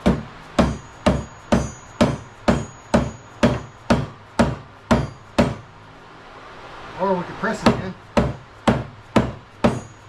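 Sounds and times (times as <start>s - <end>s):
hammer tapping metal bearing: 0.0s - 5.7s, 7.6s - 10.0s.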